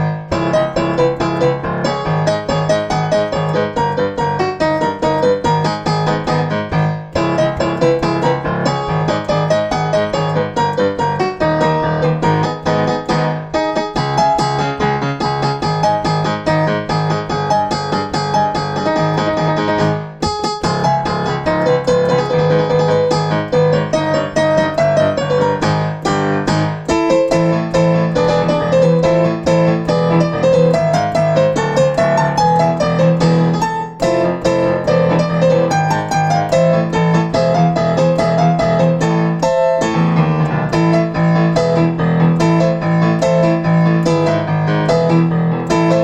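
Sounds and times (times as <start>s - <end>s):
solo piano pop arrangement: 0.0s - 46.0s.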